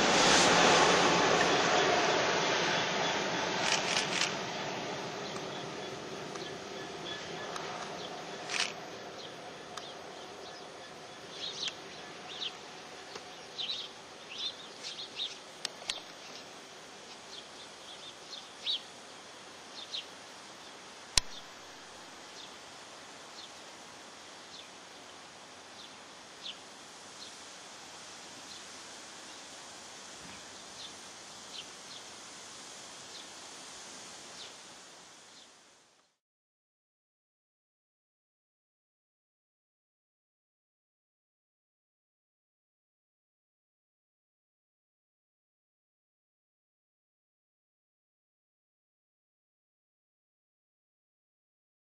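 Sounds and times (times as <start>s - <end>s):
outdoor hiss: 0.0s - 36.2s
sharp click: 21.2s - 21.4s.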